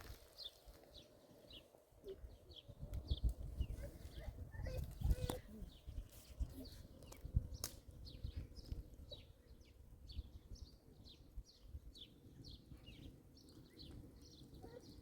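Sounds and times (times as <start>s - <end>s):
bird chirping: 0.4s - 15.0s.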